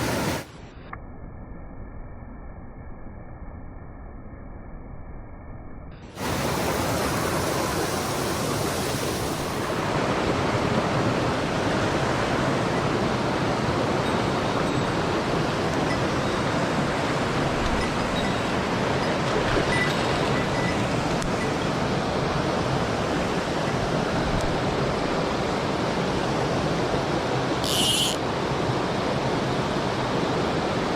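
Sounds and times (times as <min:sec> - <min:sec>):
stream rushing over rocks: 0:06.2 - 0:30.9.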